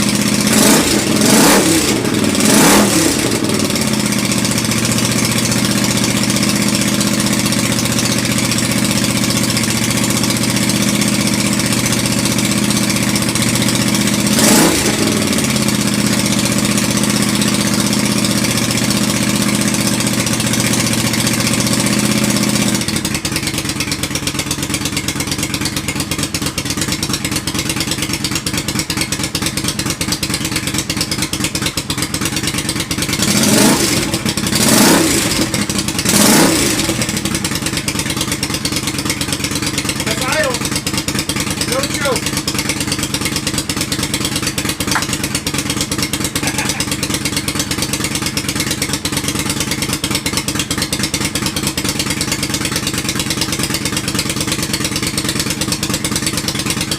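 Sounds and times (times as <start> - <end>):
motorcycle engine idling: 0.0 - 56.9
motorcycle throttle blips: 44.6 - 45.6.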